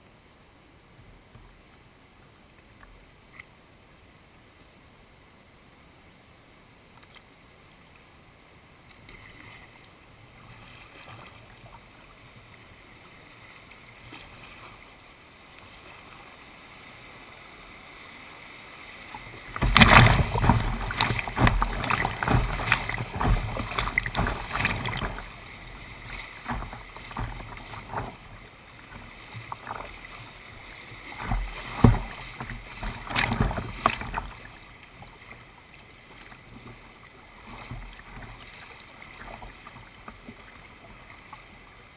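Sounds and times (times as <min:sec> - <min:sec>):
paddle strokes in water: 0:08.8 - 0:41.9
water splashing: 0:08.9 - 0:41.6.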